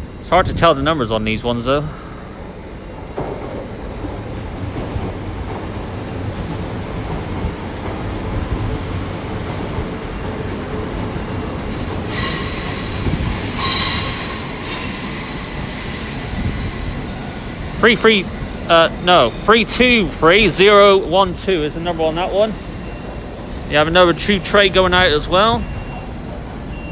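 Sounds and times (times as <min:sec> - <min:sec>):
train rumbling: 0:00.0 - 0:26.9
train wheels squealing: 0:09.7 - 0:26.9.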